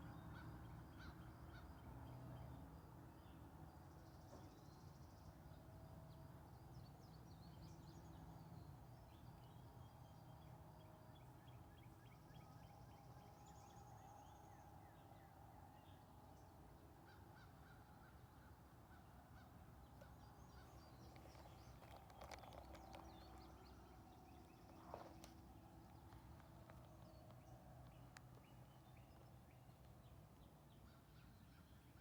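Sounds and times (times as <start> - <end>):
small birds chirping and trilling: 19.9 - 32.0.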